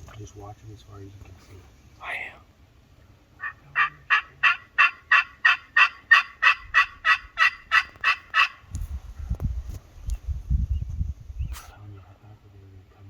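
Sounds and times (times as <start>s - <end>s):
turkey yelping: 3.4s - 8.7s.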